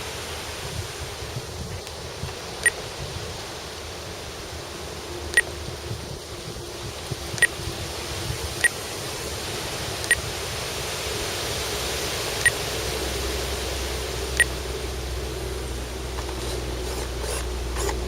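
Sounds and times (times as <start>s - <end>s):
wind on microphone: 0.0s - 18.0s
distant model plane motor drone: 4.7s - 18.0s.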